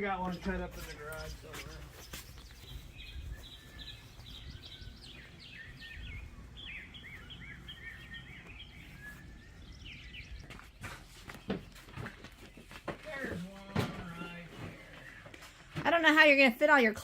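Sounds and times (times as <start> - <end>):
low outdoor rumble: 0.0 - 10.7
songbird chirping and whistling: 0.2 - 13.2.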